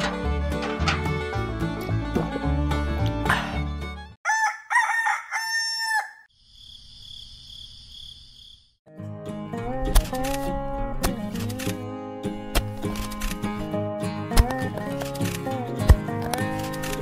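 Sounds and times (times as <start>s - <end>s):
background music: 0.0s - 4.2s, 8.9s - 17.0s
rooster crowing: 4.2s - 6.3s.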